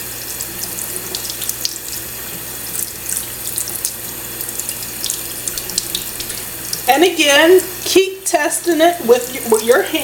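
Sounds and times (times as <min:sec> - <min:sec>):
tap water splashing in sink: 0:00.2 - 0:06.9.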